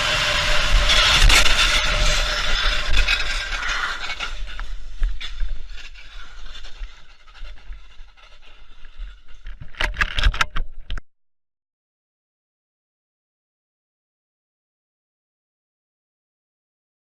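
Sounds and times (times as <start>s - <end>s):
sharp knocks and scrapes: 0.0s - 11.0s.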